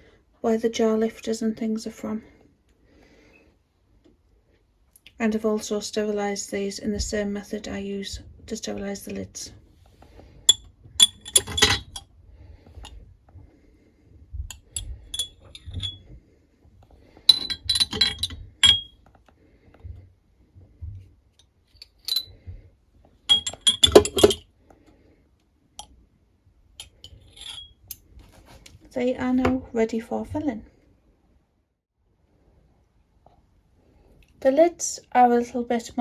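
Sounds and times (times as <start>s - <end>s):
glass jars clinking: 10.5s - 12.0s, 14.5s - 16.0s, 17.3s - 18.9s, 21.8s - 22.3s, 23.3s - 24.4s, 26.8s - 27.7s.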